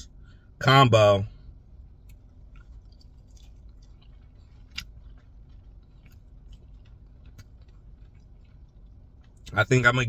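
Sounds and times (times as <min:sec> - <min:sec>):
person chewing with wet clicks: 0:01.8 - 0:09.6.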